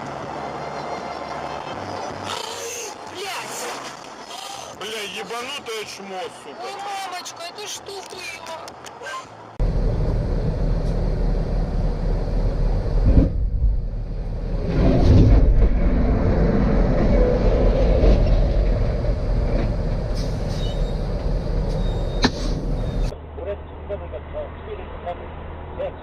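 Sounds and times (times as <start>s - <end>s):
heavy vehicle rumbling: 8.7s - 26.0s.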